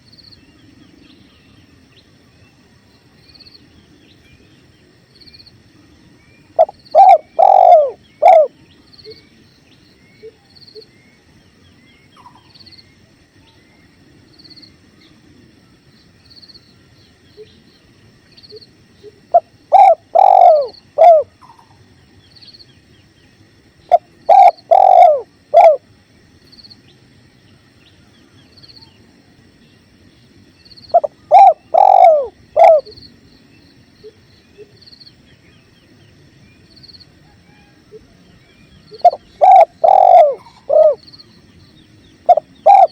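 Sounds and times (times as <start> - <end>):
dove cooing: 6.6 - 9.2, 19.0 - 21.8, 23.9 - 25.8, 30.9 - 33.0, 37.3 - 41.2, 42.2 - 42.9.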